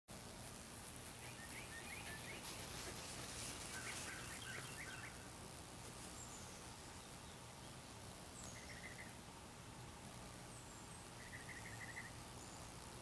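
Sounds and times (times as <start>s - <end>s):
steady low hum: 0.1s - 13.0s
small bird chirping: 1.1s - 5.4s, 6.0s - 9.2s, 10.4s - 12.9s.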